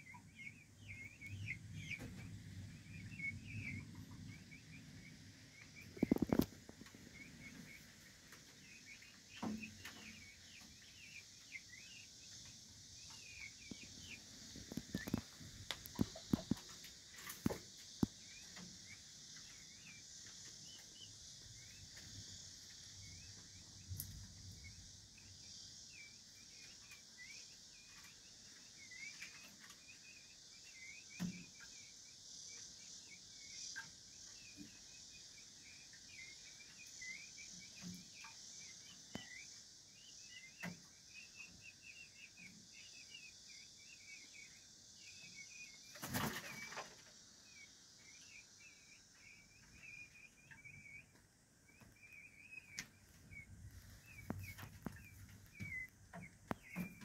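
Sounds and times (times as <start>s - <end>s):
small birds chirping: 0.0s - 57.0s
steady high hiss: 0.0s - 57.0s
wings flapping: 5.9s - 6.8s, 45.9s - 47.0s.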